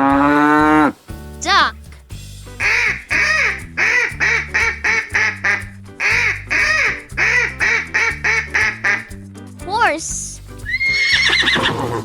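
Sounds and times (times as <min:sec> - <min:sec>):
background music: 0:00.0 - 0:12.0
duck quacking: 0:02.6 - 0:09.2.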